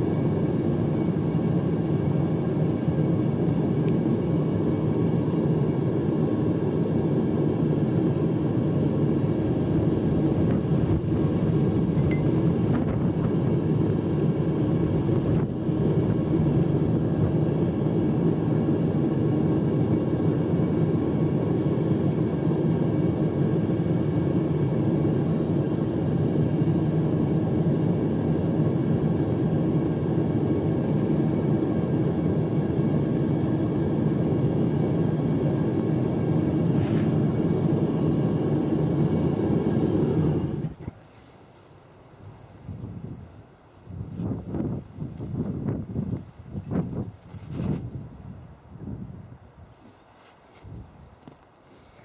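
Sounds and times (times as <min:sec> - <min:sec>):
furnace burner rumbling: 0:00.0 - 0:40.8.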